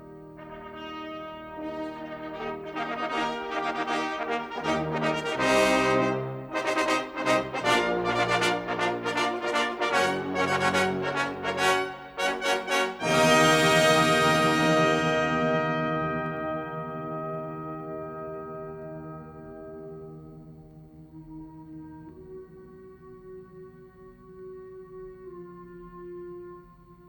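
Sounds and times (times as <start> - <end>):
wind band playing: 0.0 - 20.3.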